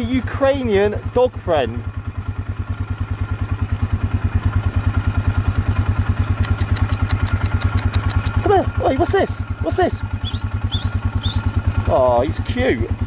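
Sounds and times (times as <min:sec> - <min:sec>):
quad bike engine idling: 0:00.0 - 0:13.0
light high ticks: 0:04.6 - 0:08.5.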